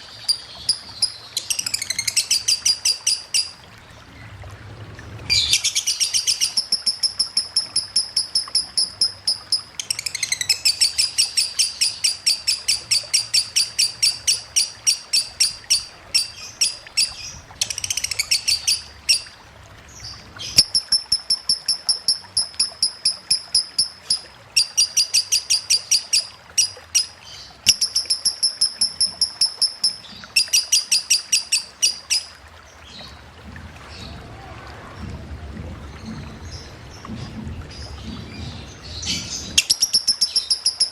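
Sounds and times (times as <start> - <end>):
faint running water: 0.0 - 40.9
lovebird chattering: 0.2 - 3.5, 5.3 - 19.2, 20.5 - 27.1, 27.7 - 32.3, 39.6 - 40.9.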